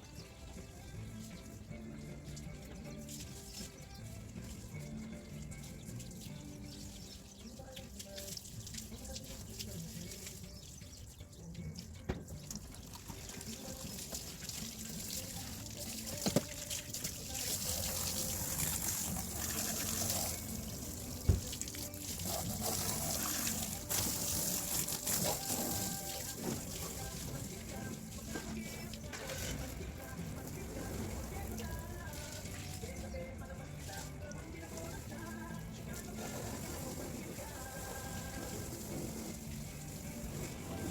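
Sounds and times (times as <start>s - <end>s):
water splashing on a car: 12.6s - 40.9s.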